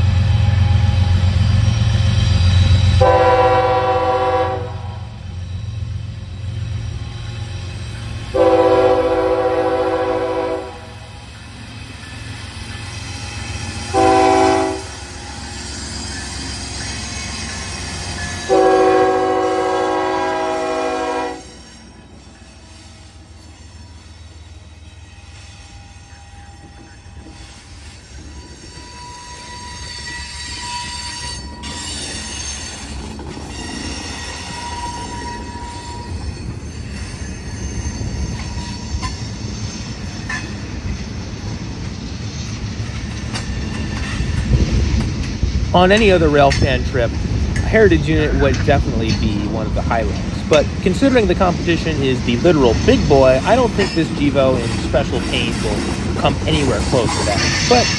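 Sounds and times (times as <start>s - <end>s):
freight train rumbling past: 0.0s - 57.9s
train wheel squeals: 0.0s - 57.9s
locomotive air horn blasts: 3.0s - 5.2s, 8.3s - 11.1s, 13.9s - 15.0s, 18.4s - 21.6s.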